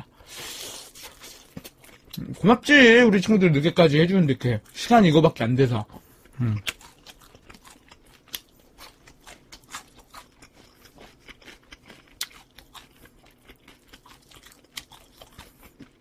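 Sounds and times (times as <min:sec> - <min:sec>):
crunchy chewing and mouth clicks: 0:00.3 - 0:02.4, 0:06.0 - 0:16.0.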